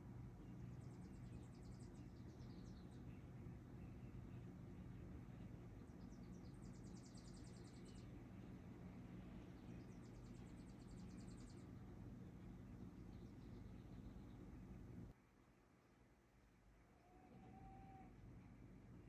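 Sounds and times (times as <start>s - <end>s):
steady low hum: 0.0s - 19.0s
songbird trills and chirps: 0.1s - 15.1s.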